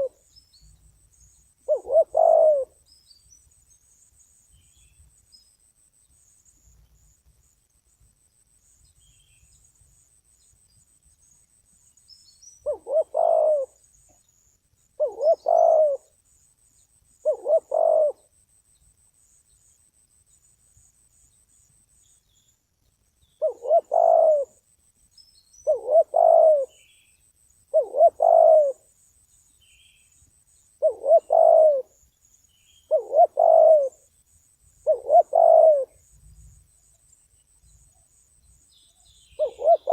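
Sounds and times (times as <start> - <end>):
dove cooing: 0.0 - 0.3, 1.6 - 2.8, 12.6 - 13.8, 15.0 - 16.2, 17.2 - 18.3, 23.4 - 24.6, 25.6 - 26.8, 27.7 - 28.9, 30.8 - 32.0, 32.9 - 34.1, 34.8 - 36.0, 39.4 - 39.9.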